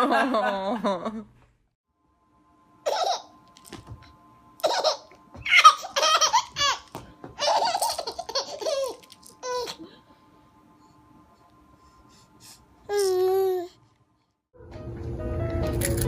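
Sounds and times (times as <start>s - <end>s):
baby laughing: 2.9s - 3.3s, 4.6s - 9.8s.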